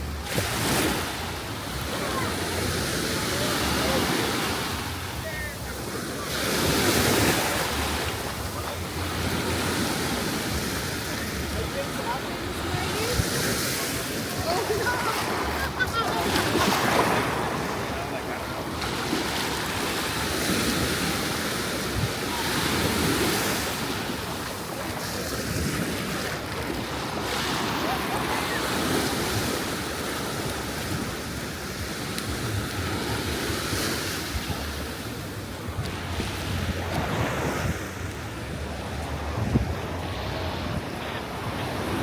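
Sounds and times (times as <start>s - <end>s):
surf breaking on beach: 0.0s - 42.0s
wind buffeting microphone: 34.3s - 42.0s.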